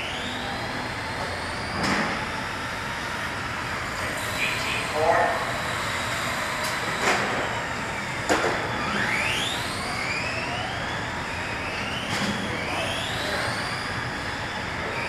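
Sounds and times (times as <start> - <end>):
rc car motors whining: 0.0 - 15.0.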